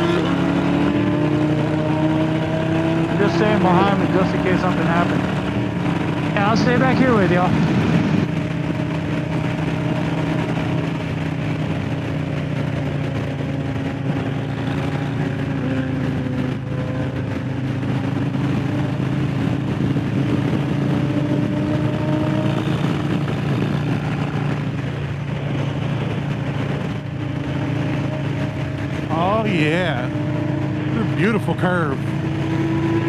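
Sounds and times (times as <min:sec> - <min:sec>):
wind noise rushing: 0:00.0 - 0:31.3
motorcycle engine cruising: 0:00.0 - 0:33.0.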